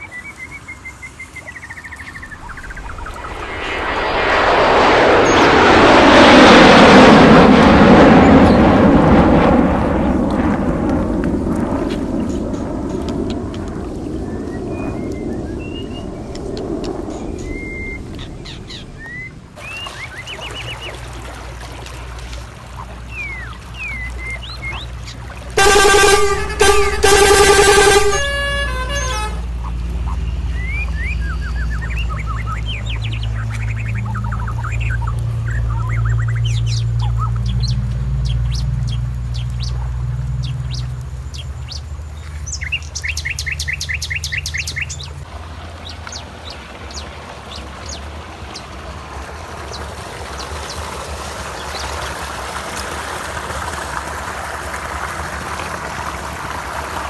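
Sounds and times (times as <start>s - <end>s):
birds chirping: 0.0s - 5.5s, 14.1s - 21.0s, 22.8s - 45.2s
low engine rumble: 1.6s - 42.2s
musical notes: 25.6s - 29.5s
heavy truck engine rushing: 25.6s - 33.4s.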